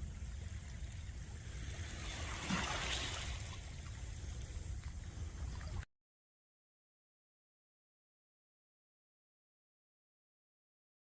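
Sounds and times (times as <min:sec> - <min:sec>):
wave washing: 0:00.0 - 0:05.8
steady low rumble: 0:00.0 - 0:05.9.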